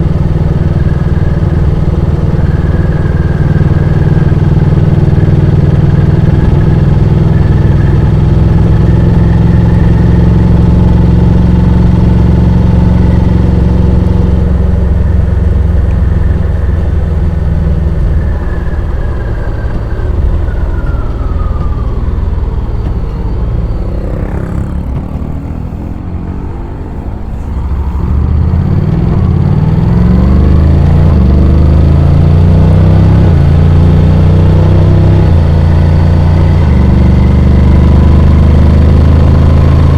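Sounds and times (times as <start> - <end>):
scooter engine running: 0.0 - 31.8.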